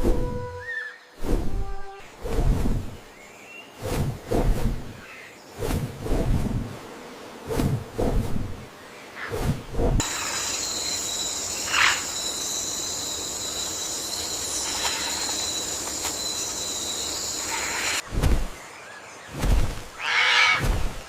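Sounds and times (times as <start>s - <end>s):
high-pitched insect drone: 10.0s - 18.0s.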